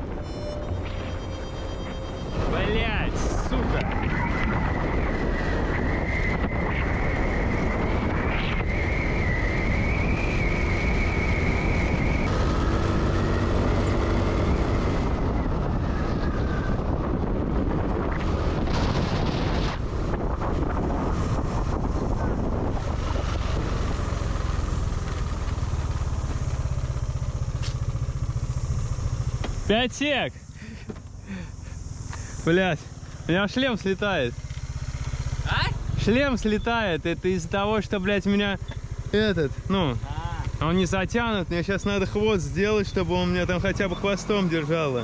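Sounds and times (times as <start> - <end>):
motorbike engine running: 0.0 - 4.7, 12.3 - 44.0
wavering whine: 0.0 - 16.8
wind and road noise: 0.0 - 45.0.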